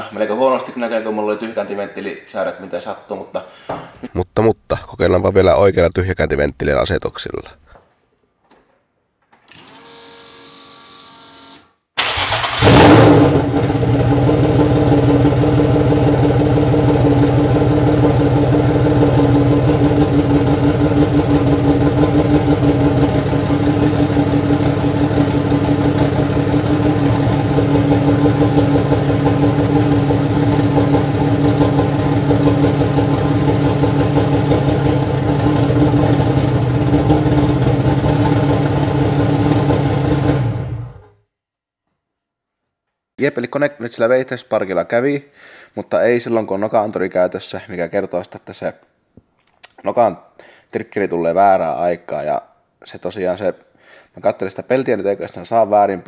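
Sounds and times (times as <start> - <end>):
car engine starting and idling: 12.0 - 41.1.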